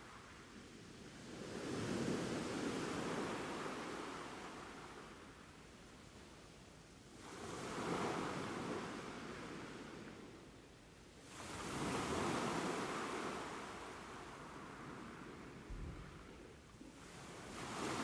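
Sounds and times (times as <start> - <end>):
ocean waves breaking on shore: 7.2 - 10.0, 11.2 - 18.0.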